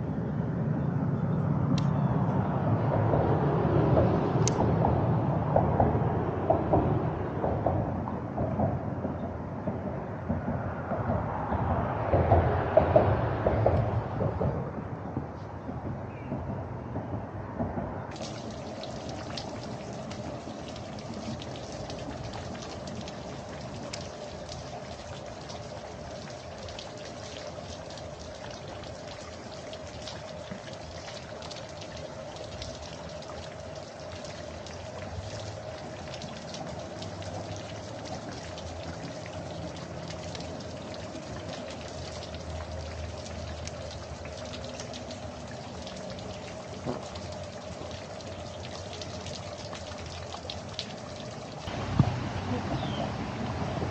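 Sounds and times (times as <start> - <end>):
pattering water drops: 18.1 - 53.4.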